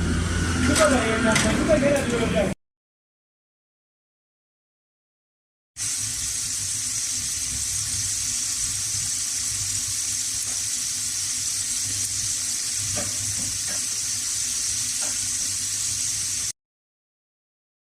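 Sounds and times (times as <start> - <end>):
potatoes sizzling in oil: 5.8 - 16.6.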